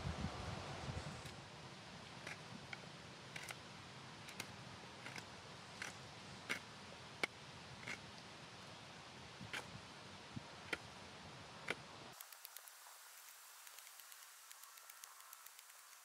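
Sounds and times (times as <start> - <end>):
wood fire crackling: 12.1 - 16.0.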